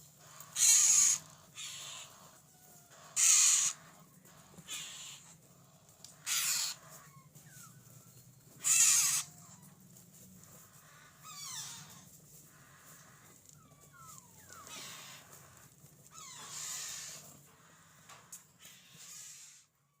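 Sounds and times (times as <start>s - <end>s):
parrot begging calls: 0.2s - 5.4s, 6.2s - 7.3s, 8.6s - 9.6s, 10.8s - 17.2s.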